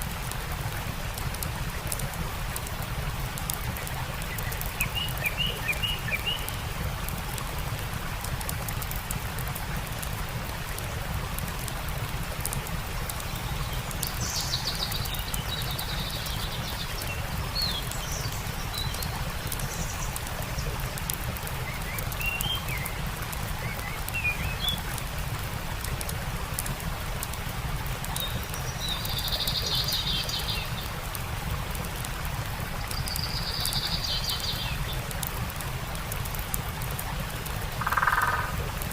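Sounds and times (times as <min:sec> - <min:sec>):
campfire crackling: 0:00.0 - 0:38.9
stream rushing: 0:00.0 - 0:38.9
songbirds chirping: 0:03.6 - 0:06.7, 0:13.0 - 0:25.2, 0:28.0 - 0:35.3.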